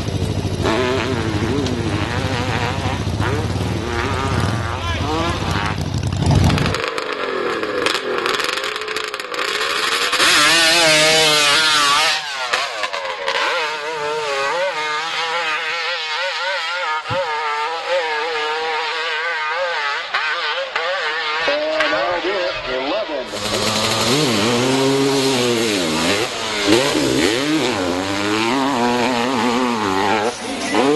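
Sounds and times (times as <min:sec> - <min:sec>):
motorcycle engine revving: 0:00.0 - 0:30.9.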